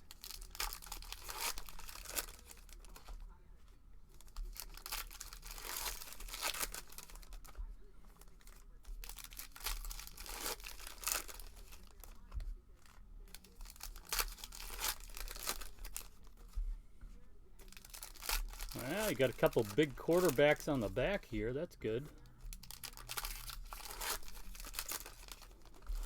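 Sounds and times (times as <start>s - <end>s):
plastic wrappers ripping and crinkling: 0.0s - 3.2s, 4.2s - 16.5s, 17.6s - 21.4s, 22.4s - 26.0s
cards being handled: 17.6s - 22.2s, 22.8s - 26.0s.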